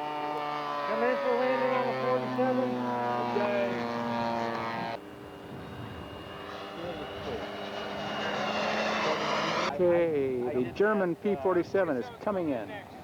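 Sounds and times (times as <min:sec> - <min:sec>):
model airplane engine running: 0:00.0 - 0:09.8.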